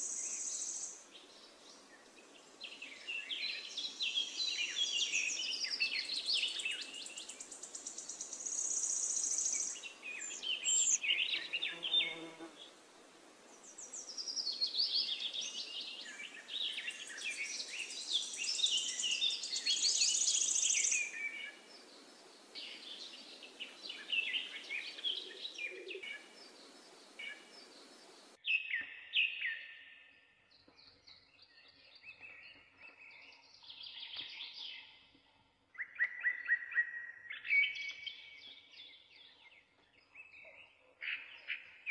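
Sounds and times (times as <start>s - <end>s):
birds chirping and singing: 0.0s - 12.4s, 13.6s - 41.9s
background hiss: 0.0s - 28.4s.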